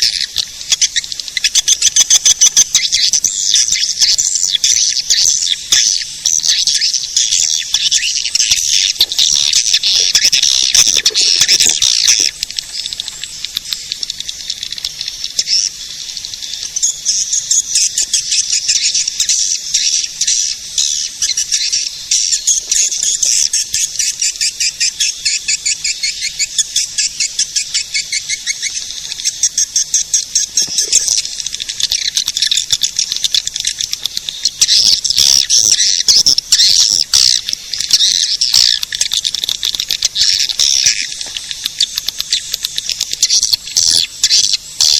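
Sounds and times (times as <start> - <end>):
swiftlet chirps and twitters: 0.0 - 44.9.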